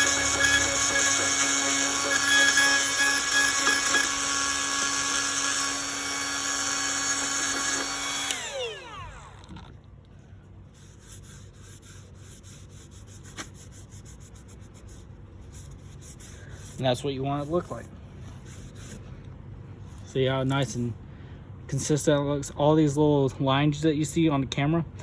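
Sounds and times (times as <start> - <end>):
rotary tool grinding whine: 0.0 - 9.8.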